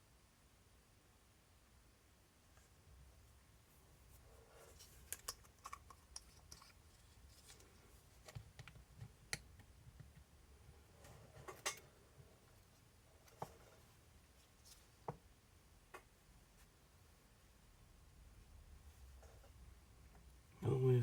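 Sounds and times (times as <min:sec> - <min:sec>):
small parts clicking and tapping: 0:05.0 - 0:10.1.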